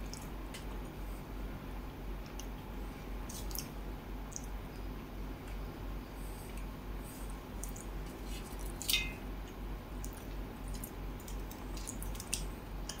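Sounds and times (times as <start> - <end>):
steady low hum: 0.0 - 13.0
wet chewing and mouth clicks: 7.6 - 13.0.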